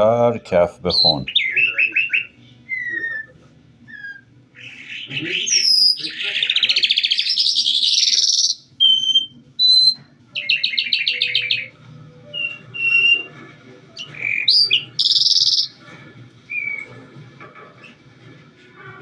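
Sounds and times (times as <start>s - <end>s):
lark singing: 0.9s - 3.3s, 3.9s - 13.3s, 14.0s - 15.8s.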